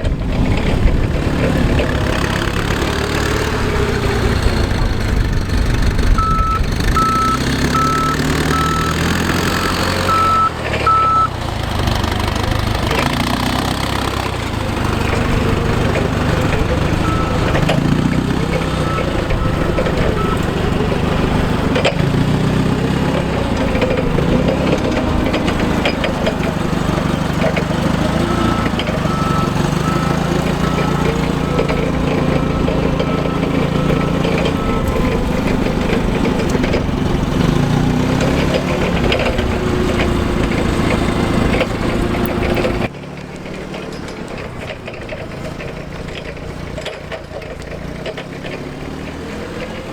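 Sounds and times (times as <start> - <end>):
forklift engine running: 0.0 - 49.9
reverse alarm beeping: 6.2 - 9.1, 9.9 - 11.3, 17.0 - 17.7, 18.6 - 20.5, 28.3 - 35.2.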